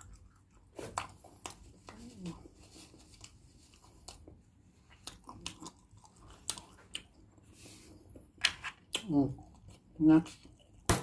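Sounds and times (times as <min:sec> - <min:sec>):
close chewing: 0:00.0 - 0:08.3.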